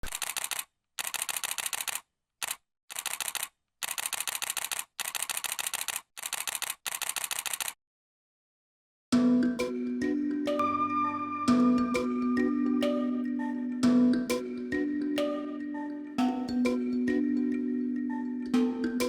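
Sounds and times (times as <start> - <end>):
camera shutter rapid clicks: 0.0 - 7.8.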